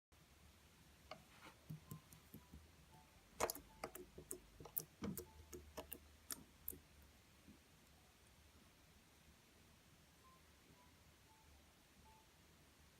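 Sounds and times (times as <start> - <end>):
light clicks and taps: 3.4 - 6.8.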